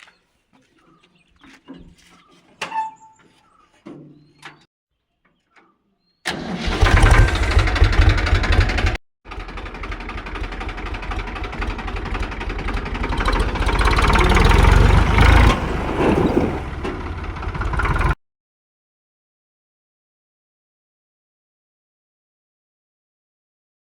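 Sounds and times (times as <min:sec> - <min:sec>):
tractor diesel engine running: 0:06.3 - 0:18.2.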